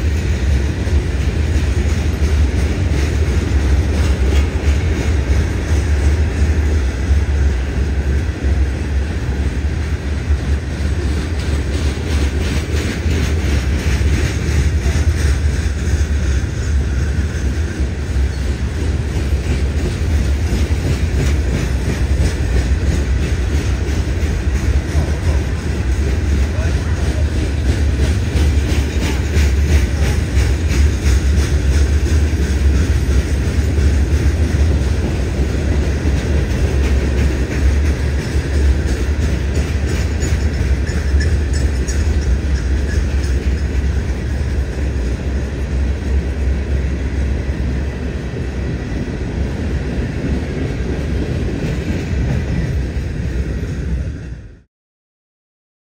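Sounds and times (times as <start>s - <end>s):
wheels clicking over rail joints: 0.0s - 47.6s
train wheels rumbling on rail: 0.0s - 54.7s.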